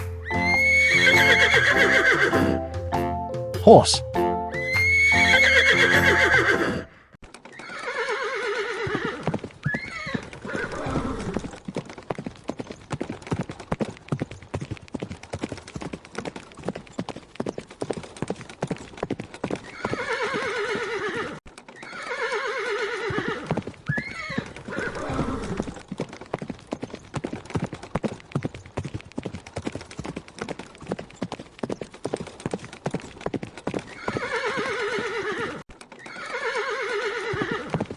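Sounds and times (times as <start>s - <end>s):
hooves clip-clopping: 0.0s - 7.8s, 8.8s - 22.2s, 22.9s - 36.4s, 37.0s - 37.9s
horse whinnying: 0.2s - 2.6s, 4.6s - 7.0s, 7.6s - 11.5s, 19.6s - 25.8s, 33.9s - 37.9s.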